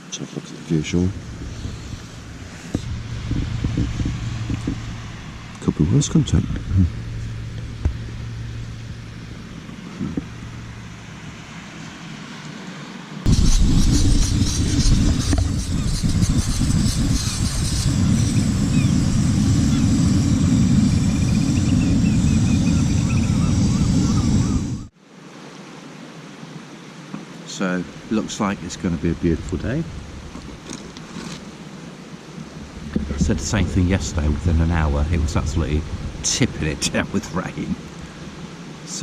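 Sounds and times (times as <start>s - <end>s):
wind buffeting microphone: 0.8s - 11.8s, 13.2s - 24.9s, 32.3s - 38.8s
surf on pebble beach: 27.4s - 39.0s.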